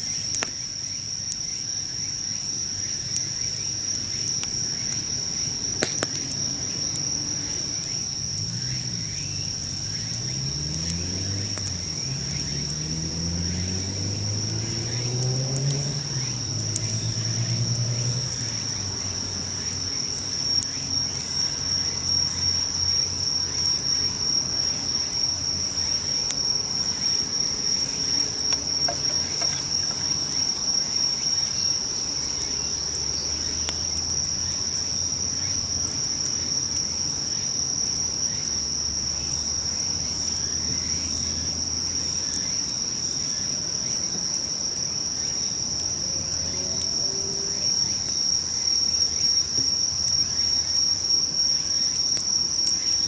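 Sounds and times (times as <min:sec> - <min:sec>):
insects trilling: 0:00.0 - 0:53.0
faint clicks: 0:27.5 - 0:30.5.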